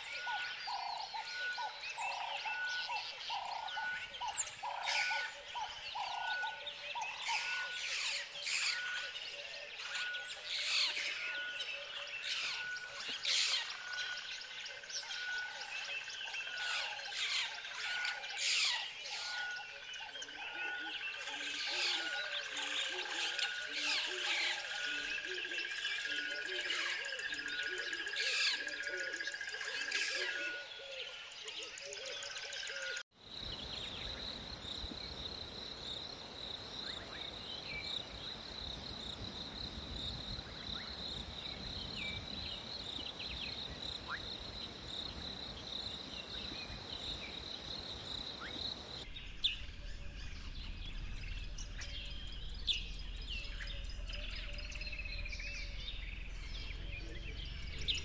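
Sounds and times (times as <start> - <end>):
birds chirping and singing: 0.0 - 58.0
high-pitched whine: 48.4 - 58.0
low rumble: 49.0 - 58.0.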